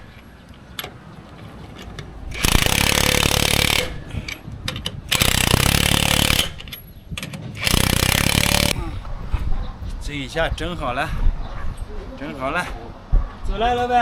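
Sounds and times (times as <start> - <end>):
tools clicking and clattering: 0.0 - 8.8
power tool hammering rattle: 2.3 - 4.1, 5.0 - 8.8.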